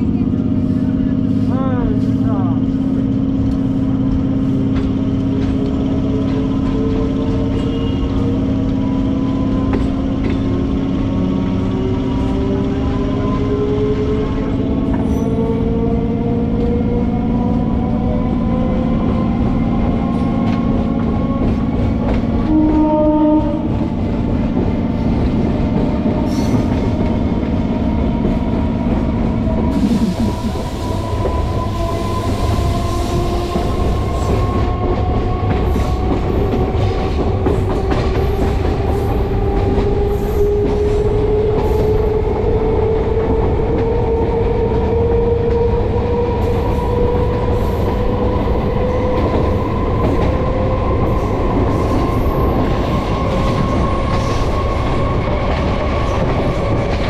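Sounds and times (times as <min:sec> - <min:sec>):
train horn blast: 0:22.4 - 0:23.8.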